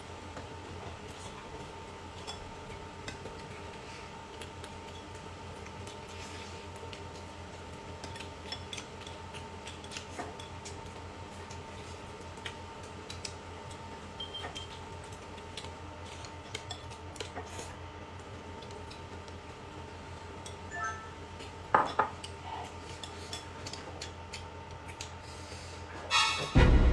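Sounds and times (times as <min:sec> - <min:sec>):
steady low hum: 0:26.6 - 0:26.9.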